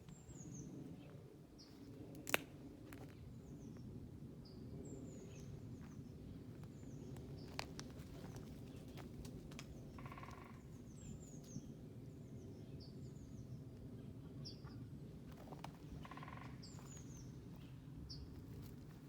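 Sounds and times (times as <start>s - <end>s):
small birds chirping: 14.2s - 19.0s.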